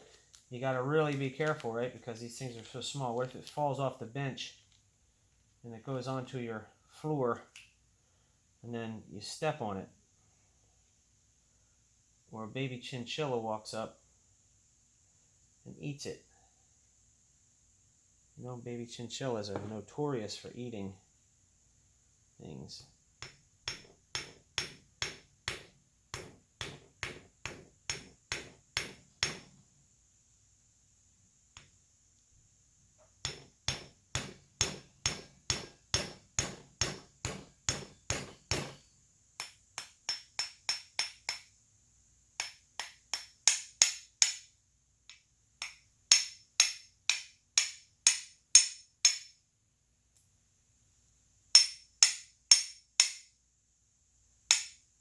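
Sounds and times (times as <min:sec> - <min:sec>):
small hammer tapping metal: 0:23.2 - 0:29.6, 0:33.2 - 0:41.5, 0:42.4 - 0:44.5, 0:45.1 - 0:49.4, 0:51.6 - 0:53.3, 0:54.5 - 0:54.8.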